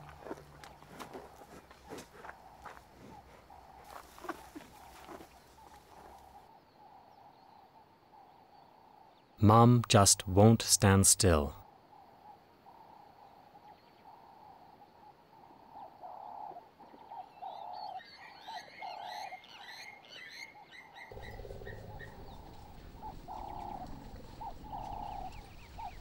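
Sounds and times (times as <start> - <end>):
birds chirping: 0.0 - 7.6, 9.4 - 11.6, 15.8 - 26.0
short repeating animal calls: 21.1 - 26.0.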